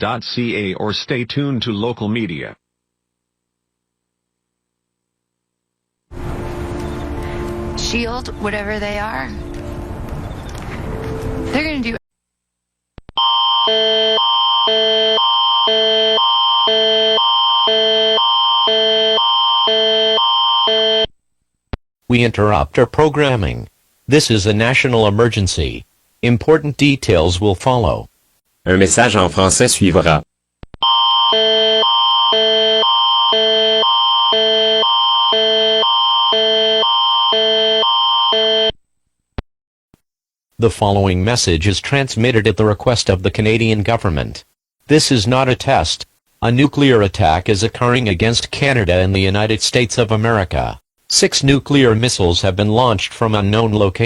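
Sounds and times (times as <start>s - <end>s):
electronic alarm tone alternating: 13.2s - 21.1s, 30.8s - 38.7s.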